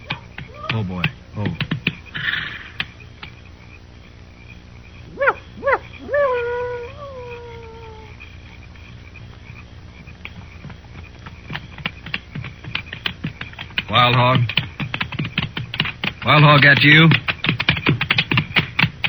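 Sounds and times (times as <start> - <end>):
dog howling: 5.1 - 8.2.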